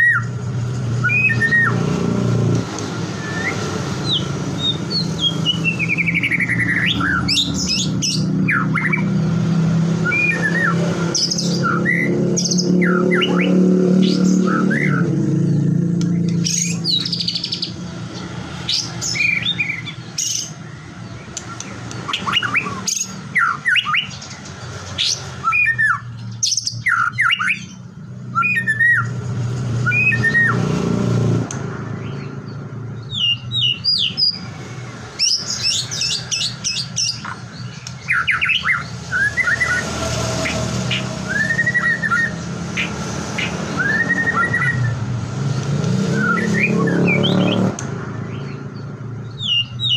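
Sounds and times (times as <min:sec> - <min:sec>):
songbird singing whistles: 0:01.0 - 0:01.8, 0:03.0 - 0:09.2, 0:10.0 - 0:15.1, 0:21.3 - 0:24.2, 0:25.0 - 0:29.2, 0:29.8 - 0:30.6, 0:33.0 - 0:34.5, 0:35.2 - 0:45.1, 0:46.0 - 0:48.6, 0:49.2 - 0:49.9.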